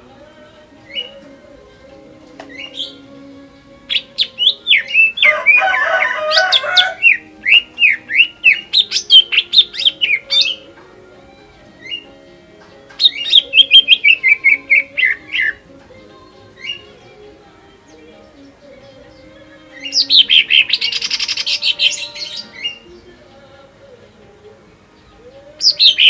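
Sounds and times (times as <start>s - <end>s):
bird singing whistled notes: 0.8s - 1.2s, 2.4s - 3.1s, 3.9s - 10.8s, 11.7s - 12.3s, 13.0s - 15.6s, 17.8s - 23.2s, 25.0s - 26.0s
bird chattering: 2.4s - 3.2s, 3.8s - 10.8s, 11.4s - 15.7s, 16.4s - 23.2s, 25.0s - 26.0s.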